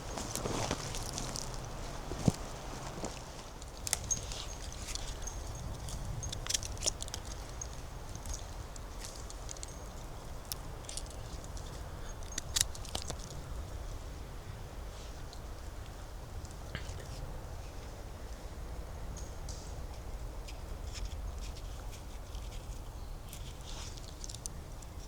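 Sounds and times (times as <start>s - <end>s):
footsteps on leaf litter and twigs: 0.0s - 5.2s.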